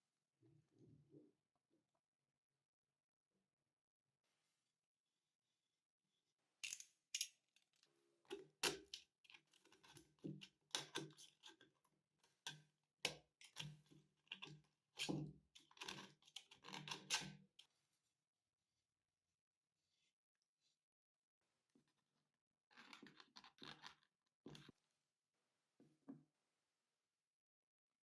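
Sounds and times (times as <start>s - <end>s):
metal parts clicking and knocking: 6.6s - 7.4s.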